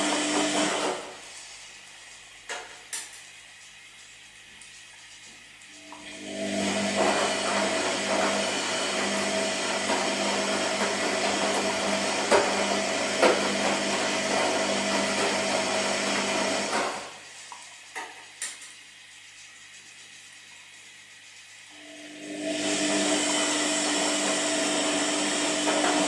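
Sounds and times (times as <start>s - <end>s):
washing machine drum turning: 5.8s - 17.2s, 22.5s - 26.0s.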